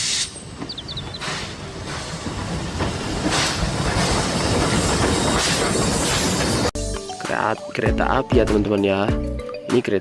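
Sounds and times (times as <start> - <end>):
steam train hissing rush: 0.0 - 0.6, 1.2 - 6.7
rail rumble: 0.0 - 6.7.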